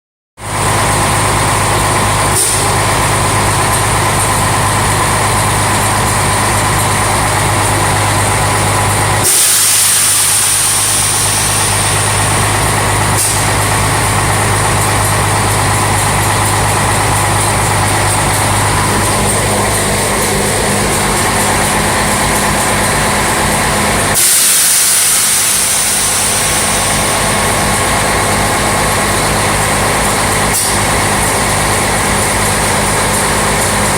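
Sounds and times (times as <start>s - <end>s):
diesel engine idling: 0.4s - 33.9s
compressed air hissing: 9.2s - 13.7s, 23.5s - 28.3s.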